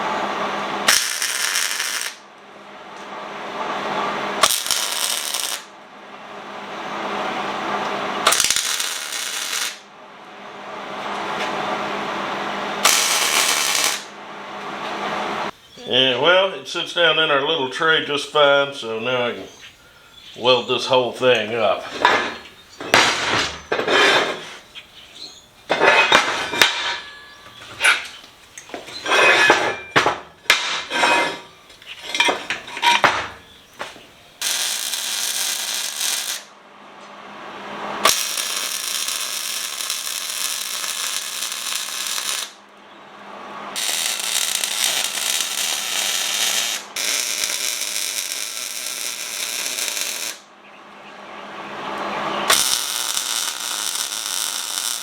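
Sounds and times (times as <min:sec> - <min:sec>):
electric welder arc crackling: 0:00.0 - 0:02.3, 0:04.4 - 0:05.8, 0:07.7 - 0:09.9, 0:12.8 - 0:14.2, 0:33.7 - 0:36.5, 0:37.6 - 0:42.7, 0:43.8 - 0:50.5, 0:52.0 - 0:55.0
steel pieces clanking: 0:25.7 - 0:33.5.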